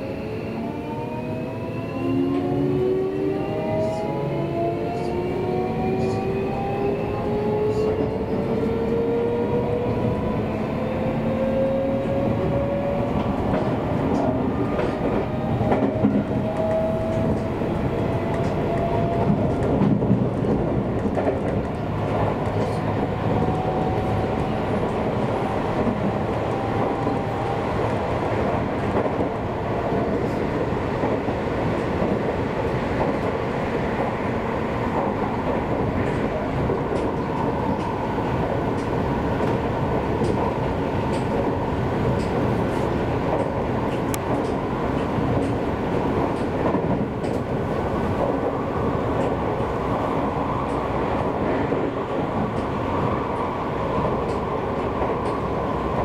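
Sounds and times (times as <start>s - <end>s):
wheels rumbling on rail: 0.0s - 56.0s
loud rail clacks: 12.8s - 30.4s, 34.9s - 49.8s, 54.0s - 56.0s.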